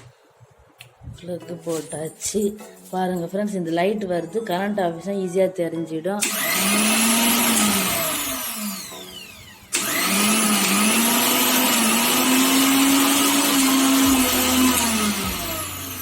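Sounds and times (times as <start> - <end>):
mixer grinder motor whining: 6.2 - 16.0.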